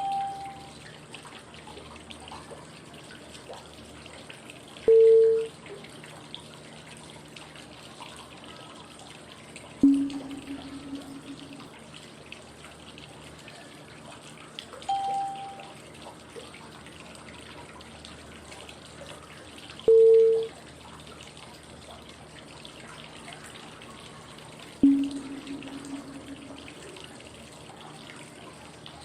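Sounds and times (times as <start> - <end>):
flowing water white noise: 0.0 - 0.8
short cue tones: 19.9 - 20.5.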